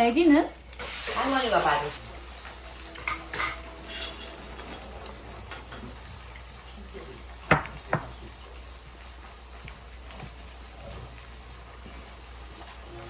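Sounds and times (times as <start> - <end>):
tableware clinking on dishes: 3.0 - 6.2.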